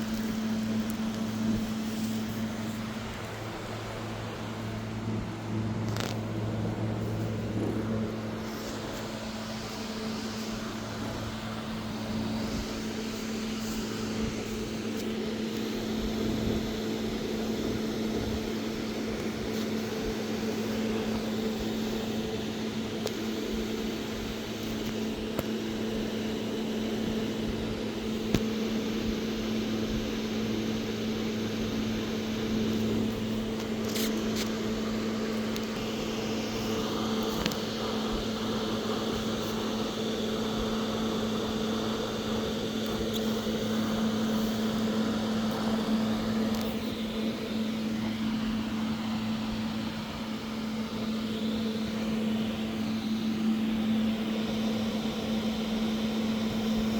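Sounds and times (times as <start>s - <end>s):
low mechanical hum: 0.0s - 56.9s.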